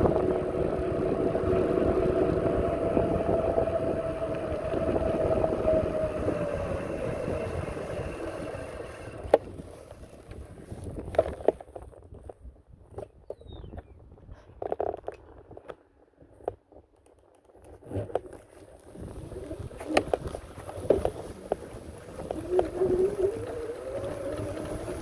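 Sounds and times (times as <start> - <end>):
motor hum with rumbling: 0.0 - 12.4, 17.7 - 25.0.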